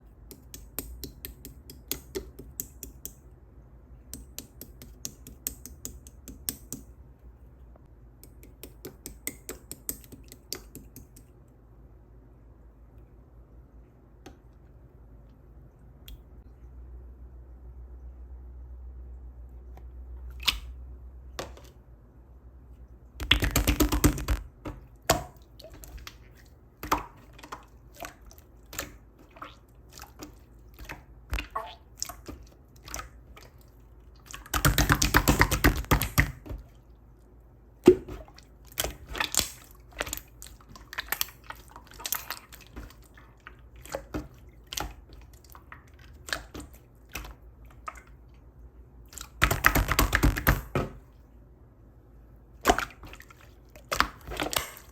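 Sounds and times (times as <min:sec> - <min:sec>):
rapid crackling of slime: 0:23.2 - 0:36.7.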